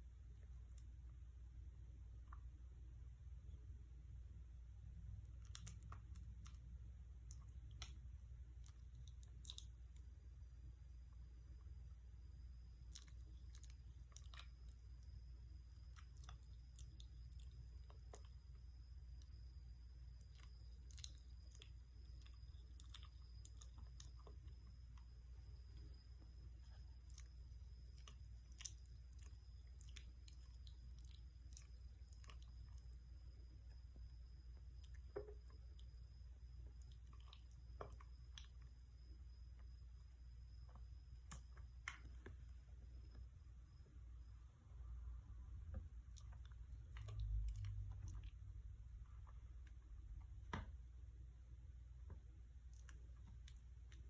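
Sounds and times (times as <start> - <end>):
low steady hum: 0.0 - 54.0
kitten chewing: 5.0 - 10.2, 12.7 - 38.8, 46.0 - 49.9
small clicks and ticks: 5.2 - 10.1.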